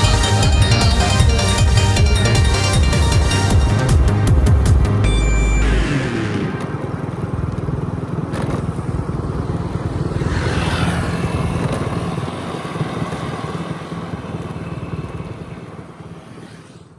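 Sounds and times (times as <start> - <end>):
race motorcycles at speed: 0.0 - 16.9
motorcycle passing by: 5.6 - 16.9.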